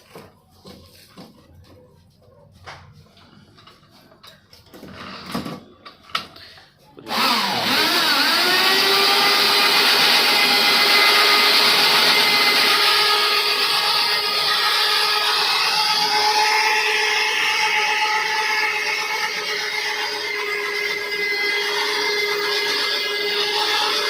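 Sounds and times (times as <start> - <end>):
boring machine motor whining: 7.0 - 24.0.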